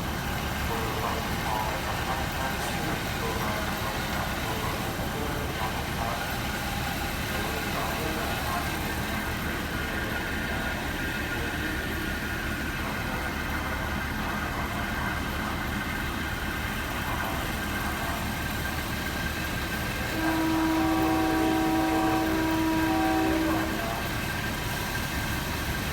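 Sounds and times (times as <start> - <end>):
train rumbling: 0.0 - 25.9
locomotive horn blast: 19.7 - 24.6.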